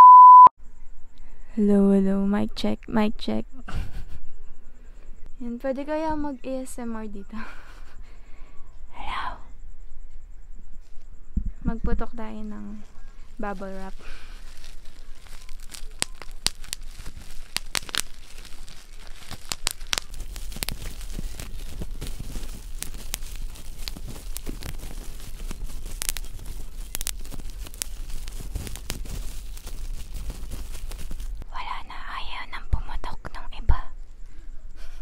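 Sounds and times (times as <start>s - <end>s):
bubble wrap crinkling: 12.7s - 31.4s
bubble wrap popping: 12.8s - 31.4s.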